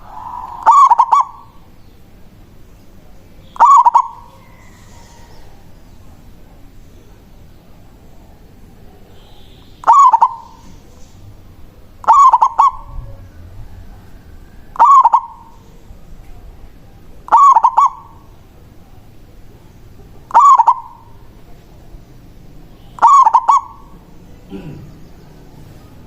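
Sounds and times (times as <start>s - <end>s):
dove cooing: 0.0s - 1.7s, 3.6s - 5.7s, 9.8s - 10.8s, 12.0s - 15.7s, 17.3s - 18.4s, 20.1s - 21.4s, 23.0s - 25.0s.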